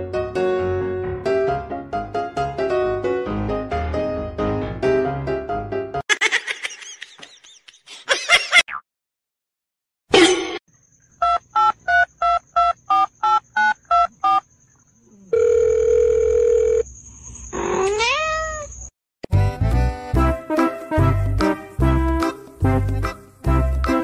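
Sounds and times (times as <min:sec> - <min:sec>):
music: 0:00.0 - 0:06.0, 0:19.3 - 0:24.0
phone line tone: 0:15.3 - 0:16.8.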